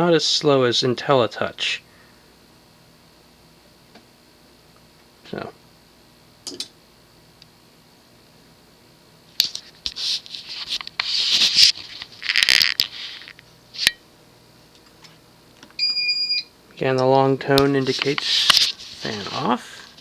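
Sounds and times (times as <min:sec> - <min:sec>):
scraping and rustling: 0:09.5 - 0:13.4, 0:17.7 - 0:20.0.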